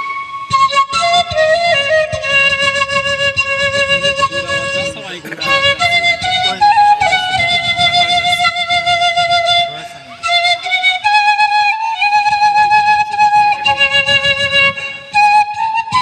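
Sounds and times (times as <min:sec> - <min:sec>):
slow flute melody: 0:00.0 - 0:16.0.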